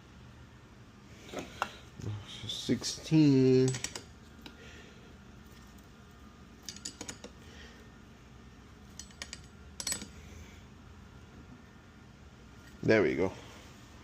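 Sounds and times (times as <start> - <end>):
metallic clicks of hand tools: 3.6 - 4.1, 6.6 - 7.3, 9.0 - 10.1.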